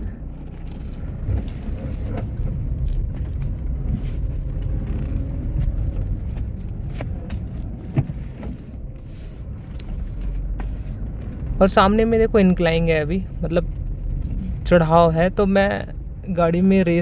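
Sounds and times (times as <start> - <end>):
car cabin low rumble: 0.0 - 17.0
car body knocks and rattles: 0.7 - 8.8.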